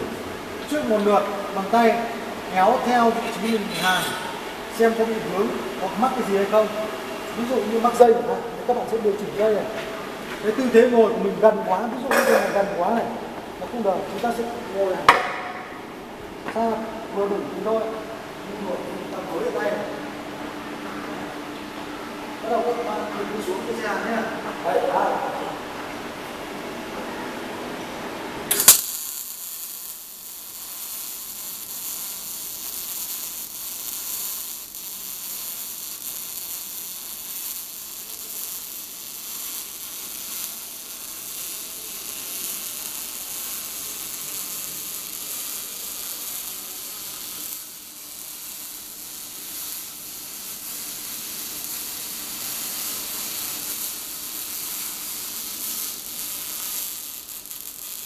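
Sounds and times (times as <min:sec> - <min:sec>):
welding arc crackling hiss: 0:00.0 - 0:20.1, 0:28.4 - 0:58.0
welding arc crack: 0:00.6 - 0:13.5, 0:14.1 - 0:15.8, 0:28.4 - 0:58.0.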